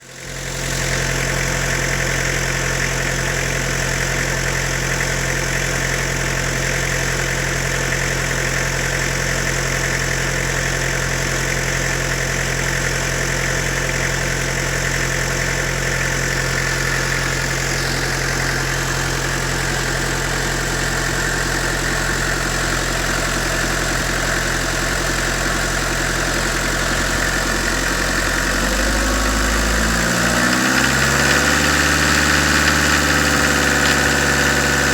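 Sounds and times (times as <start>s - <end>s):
diesel engine idling: 0.1s - 34.9s
diesel engine revving: 16.2s - 34.9s.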